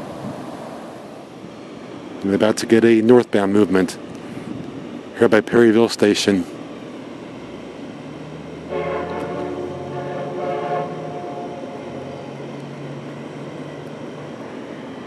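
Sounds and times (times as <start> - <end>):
train rumbling: 0.0 - 15.0
train horn: 8.6 - 12.4.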